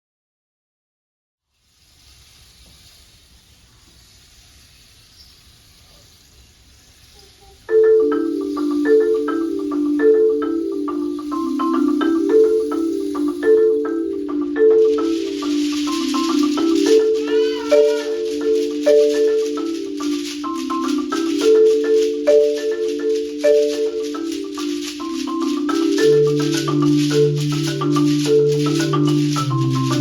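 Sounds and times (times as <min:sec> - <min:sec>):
faint room noise: 0:01.5 - 0:30.0
shaker rattling hiss: 0:01.5 - 0:30.0
marimba playing: 0:07.6 - 0:30.0.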